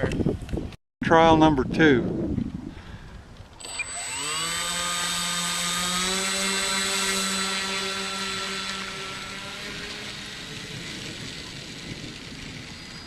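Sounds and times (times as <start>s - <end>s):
electric motor and propeller whine: 3.5s - 13.0s.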